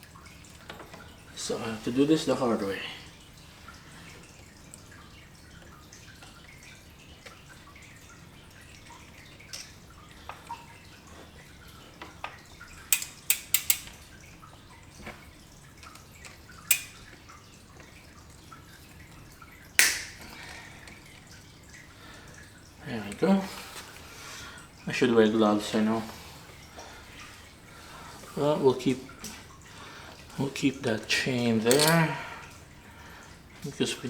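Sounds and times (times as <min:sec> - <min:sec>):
bicycle chain metal clicks: 0:12.9 - 0:14.0, 0:16.7 - 0:17.1, 0:31.7 - 0:32.0.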